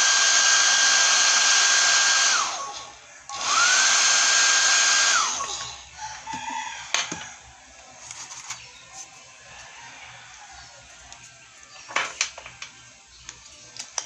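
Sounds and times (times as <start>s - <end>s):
electric blower running: 0.0s - 5.8s.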